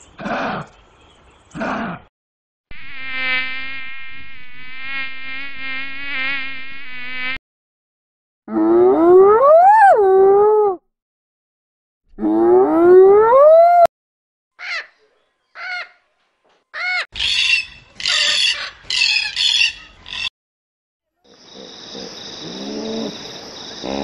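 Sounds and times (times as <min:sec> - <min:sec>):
parrot squawking: 0:16.8 - 0:20.3.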